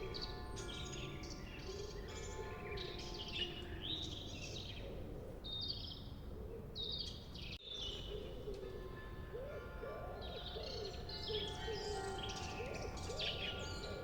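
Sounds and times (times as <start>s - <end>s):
birds chirping and trilling: 6.8s - 14.0s.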